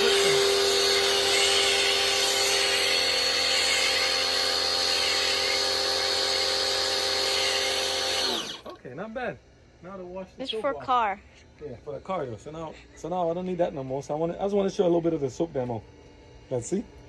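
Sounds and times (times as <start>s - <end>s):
pressure washer motor whine: 0.0s - 8.7s.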